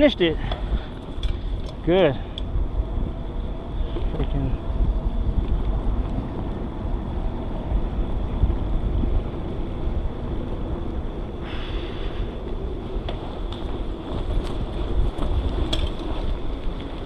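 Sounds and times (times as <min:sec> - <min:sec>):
bicycle tyres rolling on trail: 0:00.0 - 0:17.0
wind buffeting microphone: 0:00.0 - 0:17.0
high hiss: 0:11.4 - 0:12.4.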